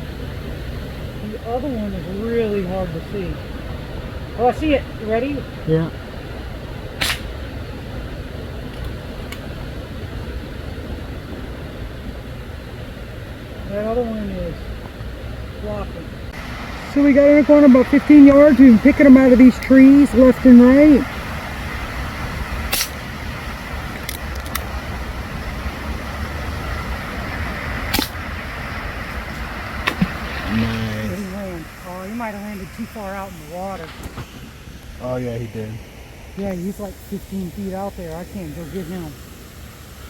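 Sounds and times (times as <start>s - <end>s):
low rumble and hiss: 0.0s - 40.0s
short sharp clicks: 7.0s - 7.3s.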